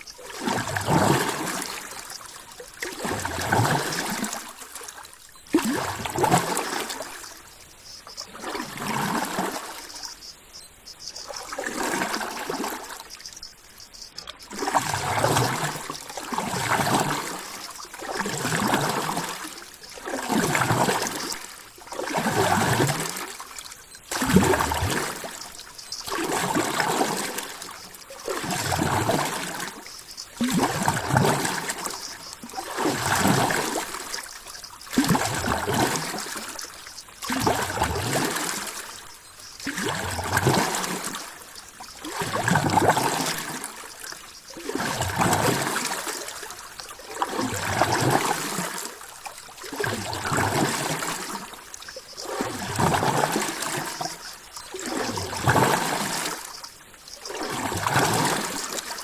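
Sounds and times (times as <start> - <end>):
ocean water surging: 8.1 - 10.1, 11.1 - 13.2.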